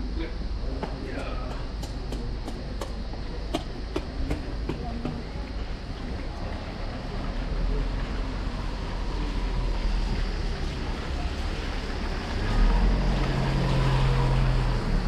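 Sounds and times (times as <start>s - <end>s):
vehicle engine humming: 0.0s - 15.0s
rain falling: 5.6s - 15.0s.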